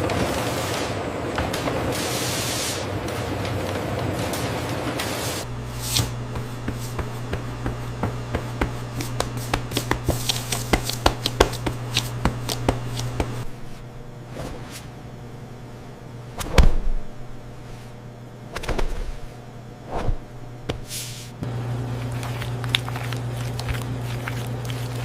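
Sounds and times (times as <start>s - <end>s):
low machine hum: 0.0s - 25.0s
loud thump: 16.4s - 17.1s.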